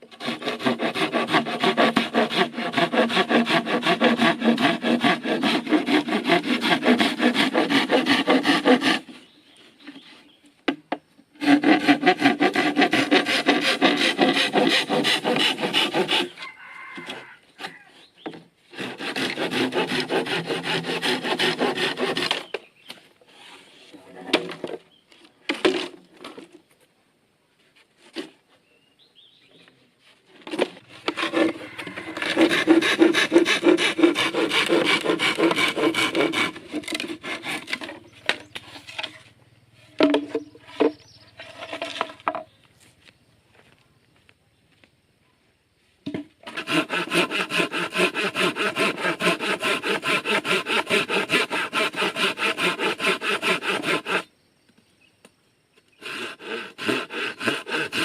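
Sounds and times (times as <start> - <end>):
hand saw cutting wood: 0.0 - 9.3, 11.4 - 16.4, 18.7 - 22.6, 30.4 - 39.3, 39.9 - 42.4, 46.4 - 54.3, 56.0 - 58.0.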